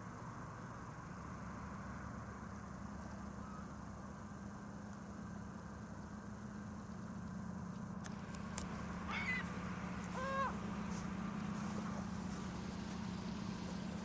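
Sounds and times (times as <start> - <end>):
steady low hum: 0.0 - 14.0
bird calls: 3.0 - 3.8, 9.0 - 10.6.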